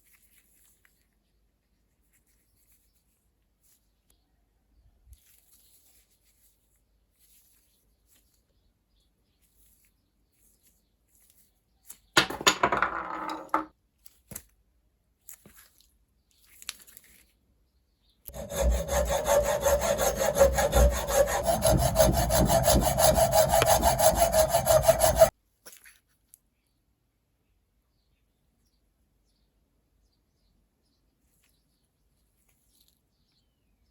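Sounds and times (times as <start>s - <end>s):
saw cutting wood: 18.3s - 25.3s.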